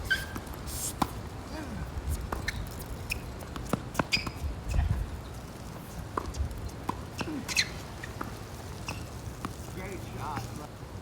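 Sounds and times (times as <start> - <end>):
short high squeaks: 0.0 - 0.4, 4.1 - 4.4, 7.5 - 8.2.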